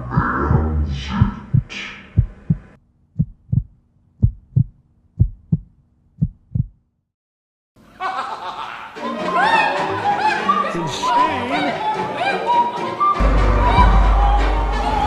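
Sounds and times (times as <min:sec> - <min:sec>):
heartbeat thumps: 0:00.0 - 0:06.8.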